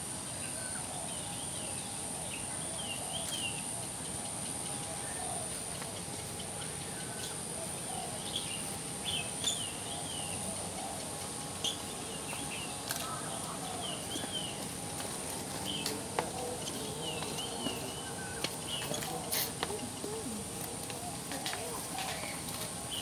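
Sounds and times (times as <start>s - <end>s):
birds chirping: 0.1s - 23.0s.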